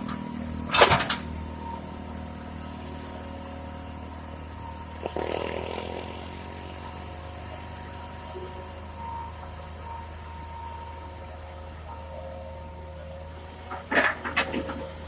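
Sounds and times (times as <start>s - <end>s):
heavy machine engine running: 0.0s - 15.0s.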